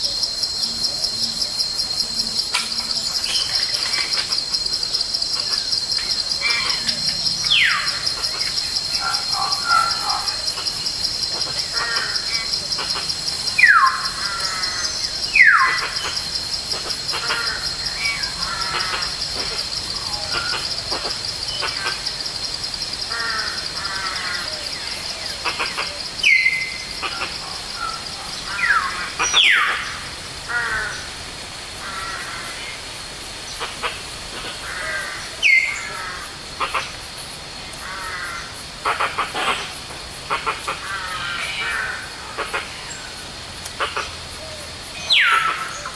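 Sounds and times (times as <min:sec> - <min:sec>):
birds chirping: 0:00.0 - 0:21.9
high pulsing insect buzz: 0:00.0 - 0:30.9.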